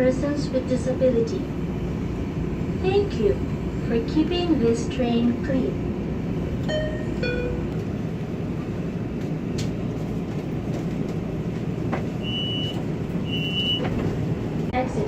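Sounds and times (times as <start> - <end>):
train rumble inside carriage: 0.0 - 15.0
two-note chime: 6.7 - 7.6.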